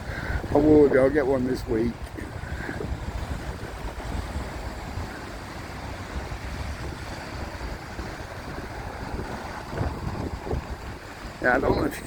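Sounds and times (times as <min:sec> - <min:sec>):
steady rain: 0:00.0 - 0:12.0
wind buffeting microphone: 0:00.0 - 0:12.0.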